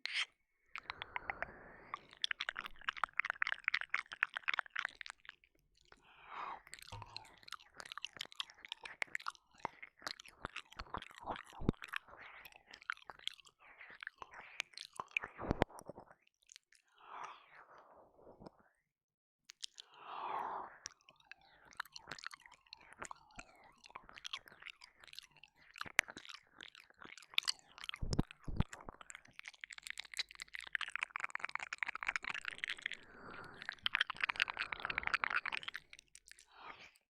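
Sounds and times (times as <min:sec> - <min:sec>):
rapid tongue clicks: 0:00.0 - 0:06.0, 0:06.6 - 0:16.8, 0:20.8 - 0:37.0
wet mouth licking and smacking: 0:00.1 - 0:06.0, 0:06.6 - 0:16.8, 0:19.5 - 0:19.8, 0:20.8 - 0:37.0
breathy exhalations: 0:32.9 - 0:35.3.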